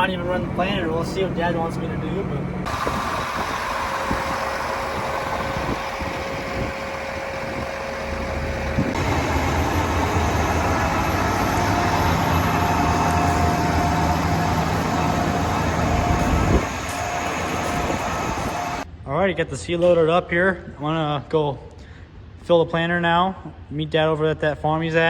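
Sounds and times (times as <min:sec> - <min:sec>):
vehicle engine humming: 0:00.0 - 0:18.9.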